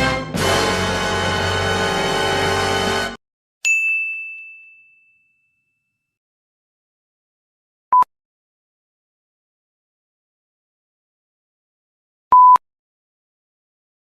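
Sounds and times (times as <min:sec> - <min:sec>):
music: 0:00.0 - 0:03.2
bright ding chime: 0:03.7 - 0:06.0.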